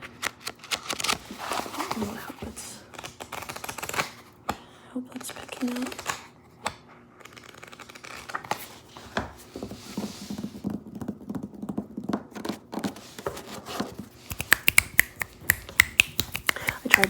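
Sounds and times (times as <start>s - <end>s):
hands rubbing: 14.2s - 17.0s.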